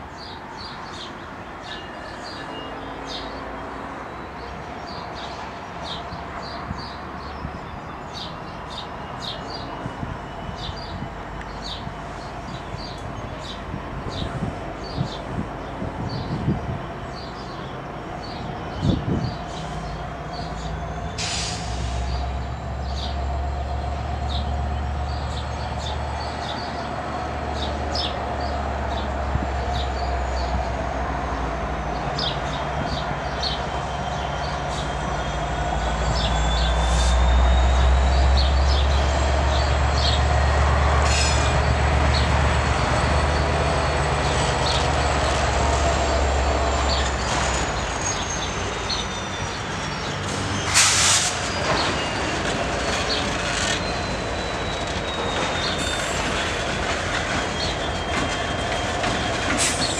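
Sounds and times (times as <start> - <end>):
freight train engine and wheel rumble: 0.0 - 59.9
high-pitched wheel squeal: 46.0 - 59.9.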